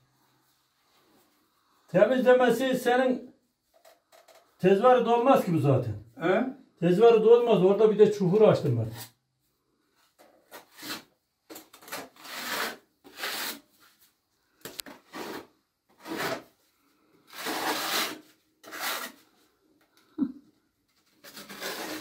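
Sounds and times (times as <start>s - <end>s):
hand tool scraping rough surface: 12.0s - 13.6s, 15.0s - 16.6s, 17.3s - 19.3s, 21.2s - 22.0s.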